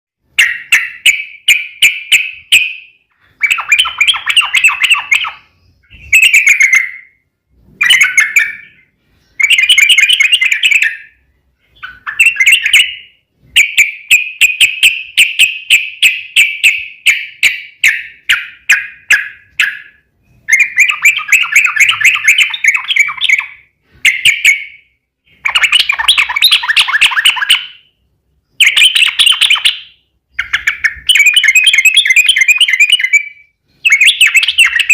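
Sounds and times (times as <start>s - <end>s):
bird chattering song: 0.3s - 34.9s.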